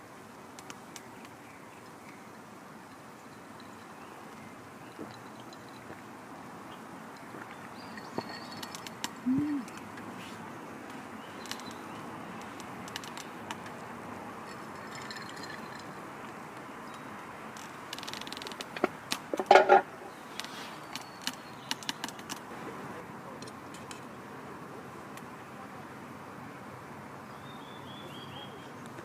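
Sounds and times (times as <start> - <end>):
faint high bird chirps: 27.3 - 28.8.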